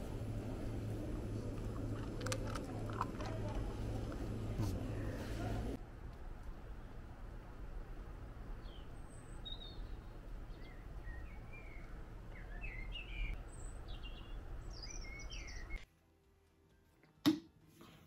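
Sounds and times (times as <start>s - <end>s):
low outdoor rumble: 0.0s - 16.4s
small birds chirping: 8.5s - 15.8s.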